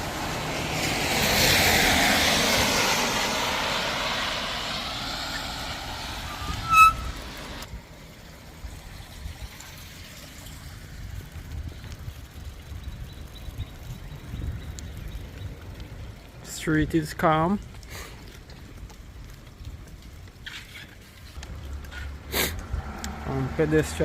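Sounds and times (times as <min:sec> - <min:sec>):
tyre hiss on wet road: 0:00.0 - 0:07.7, 0:17.8 - 0:18.3, 0:21.1 - 0:24.0
bicycle brake squeal: 0:06.2 - 0:07.3.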